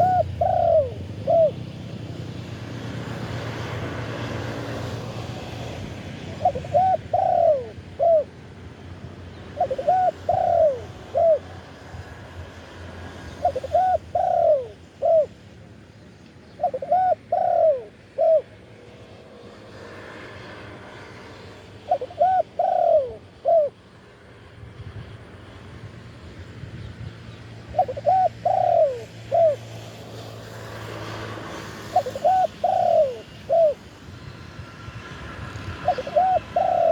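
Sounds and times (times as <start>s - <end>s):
dove cooing: 0.0s - 8.4s, 9.3s - 11.8s, 13.0s - 15.4s, 16.5s - 18.6s, 21.4s - 23.8s, 27.6s - 30.0s, 31.0s - 33.9s, 35.5s - 36.9s.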